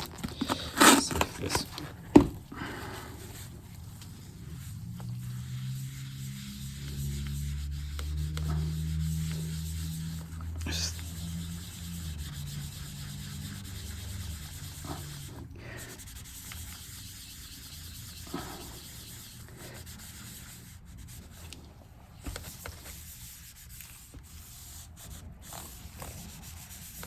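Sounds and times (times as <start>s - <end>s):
wipe scrubbing laptop case: 3.2s - 21.5s.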